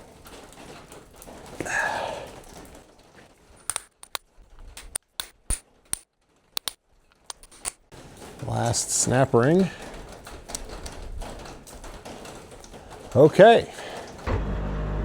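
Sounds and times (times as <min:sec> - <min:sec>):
sharp metallic clicks: 0:03.7 - 0:07.9.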